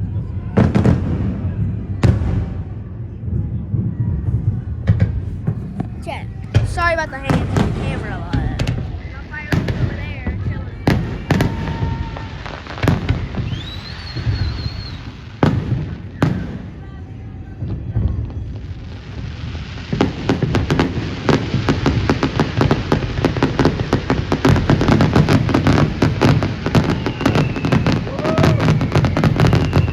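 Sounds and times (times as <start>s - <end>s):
firework bangs: 0.5s - 29.9s
rapid firework crackle: 3.8s - 29.9s
rising firework whistle: 11.2s - 16.6s, 26.0s - 29.9s.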